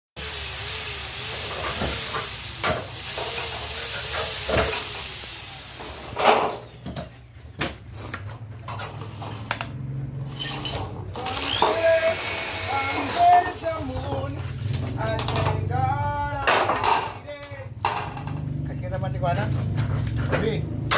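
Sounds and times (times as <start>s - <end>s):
miter saw running: 0.2s - 6.2s, 11.2s - 14.1s.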